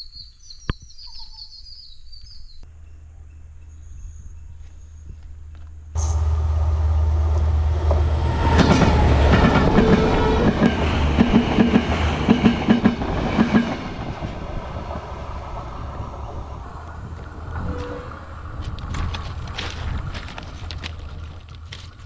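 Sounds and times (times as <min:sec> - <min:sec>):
train wheels clacking over rail joints: 0:07.3 - 0:14.4.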